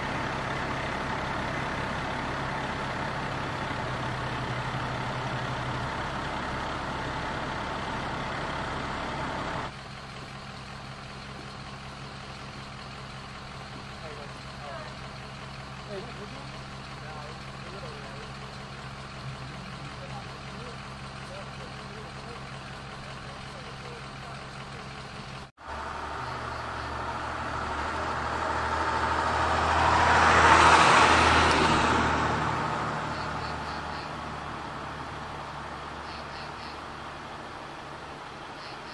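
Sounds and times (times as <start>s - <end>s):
truck engine idling: 0.0s - 38.9s
vehicle driving past: 25.6s - 38.3s.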